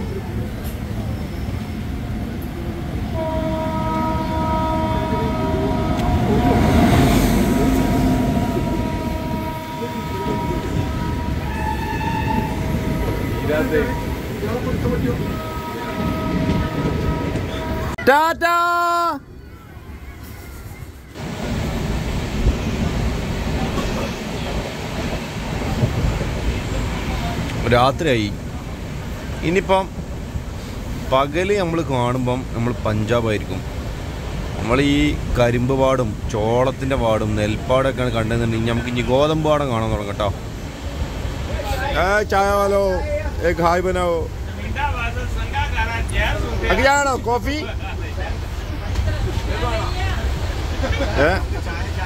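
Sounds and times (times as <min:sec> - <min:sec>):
train rumble: 0:00.0 - 0:52.0
multi-tone train horn: 0:03.1 - 0:18.1.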